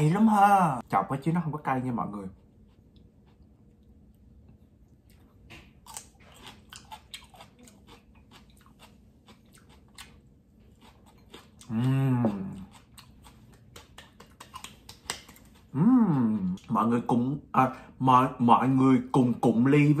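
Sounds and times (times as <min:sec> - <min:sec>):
crunching bites and chewing: 0:04.9 - 0:15.8
person humming mmm: 0:11.6 - 0:12.8, 0:15.7 - 0:16.6.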